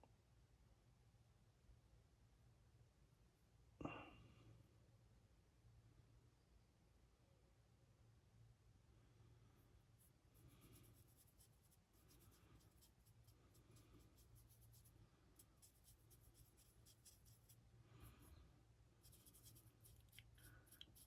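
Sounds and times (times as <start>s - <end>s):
paintbrush strokes: 9.7s - 21.0s.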